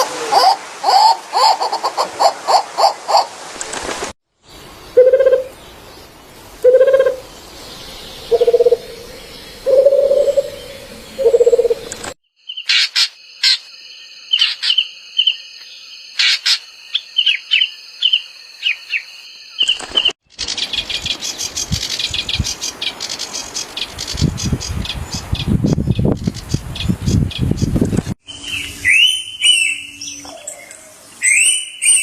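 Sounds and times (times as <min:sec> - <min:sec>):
high bird chirps and whistles: 0:28.2 - 0:32.0.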